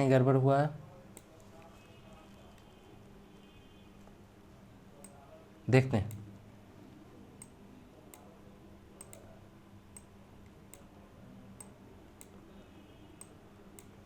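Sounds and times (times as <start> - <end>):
low steady hum: 0.4 - 14.0
faint sharp clicks: 9.0 - 9.3, 13.2 - 14.0.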